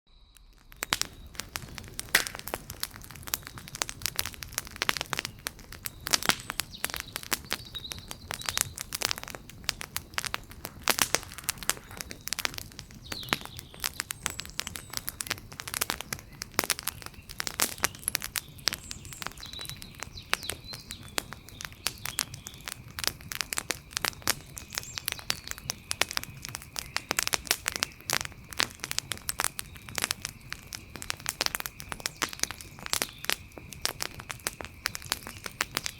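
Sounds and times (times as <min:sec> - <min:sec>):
wood fire crackling and popping: 0:00.3 - 0:35.9.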